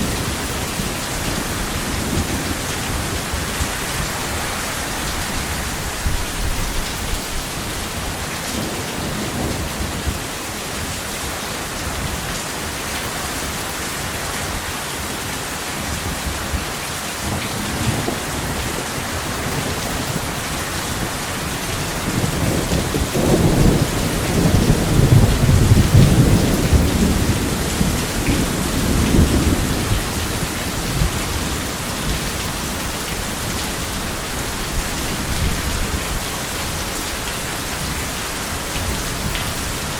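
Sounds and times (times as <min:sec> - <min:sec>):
thunder rumbling: 0:00.0 - 0:10.4, 0:17.2 - 0:36.9
heavy rain: 0:00.0 - 0:39.9.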